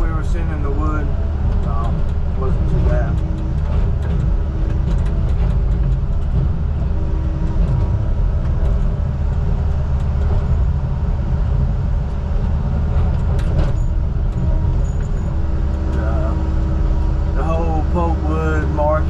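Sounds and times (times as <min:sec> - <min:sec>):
heavy diesel engine rumbling: 0:00.0 - 0:19.0.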